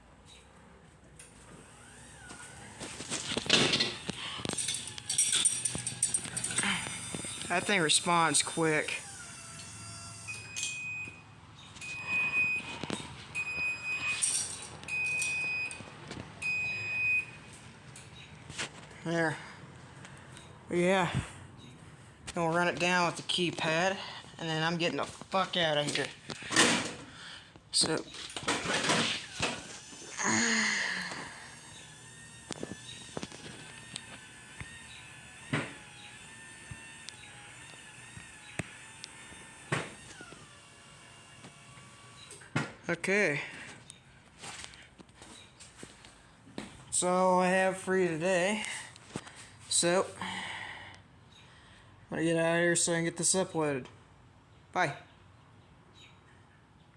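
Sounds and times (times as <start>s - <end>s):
garage door opener beeping: 1.2s - 18.6s, 25.7s - 42.8s.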